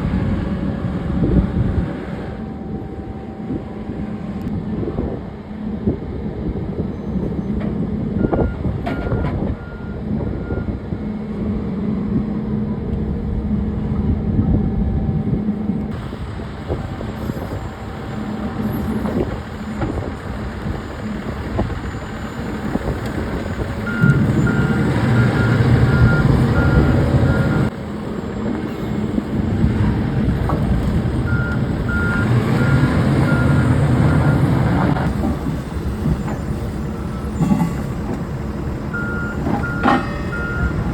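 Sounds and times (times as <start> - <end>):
diesel engine rumble: 0.0 - 40.9
reversing alarm beeping: 8.2 - 10.8, 21.0 - 27.7, 31.2 - 35.1, 38.9 - 40.9.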